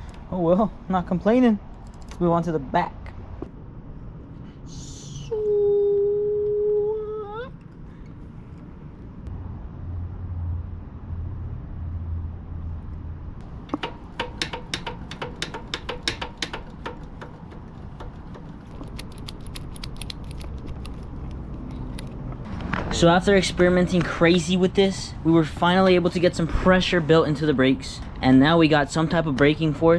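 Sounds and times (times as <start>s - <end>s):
metallic clicks and taps: 13.7s - 22.2s.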